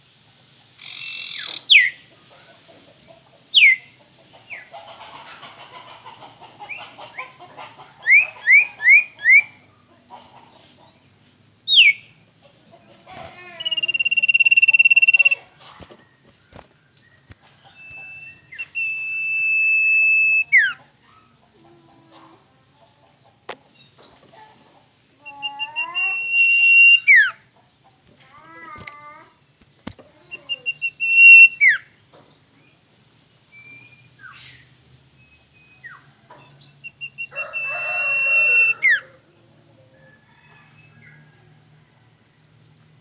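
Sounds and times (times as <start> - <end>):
bird whistling song: 0.8 - 2.0, 3.6 - 3.9, 8.0 - 9.6, 11.7 - 12.1, 13.2 - 15.9, 16.5 - 20.8, 25.2 - 27.4, 29.8 - 32.0, 35.2 - 39.0
faint clicks: 12.9 - 18.8, 28.1 - 30.2
short bird calls: 13.0 - 20.8, 25.2 - 27.4, 28.1 - 31.9, 36.8 - 39.1.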